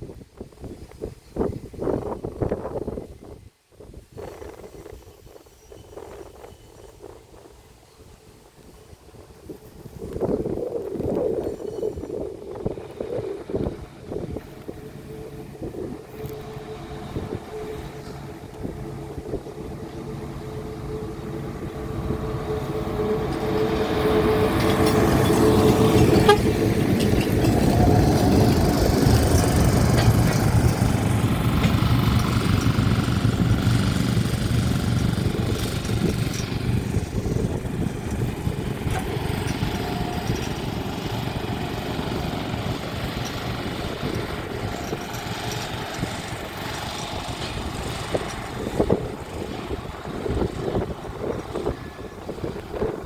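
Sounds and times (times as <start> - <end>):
diesel locomotive engine: 0.0 - 53.0
wagons rumbling and clattering: 8.4 - 53.0.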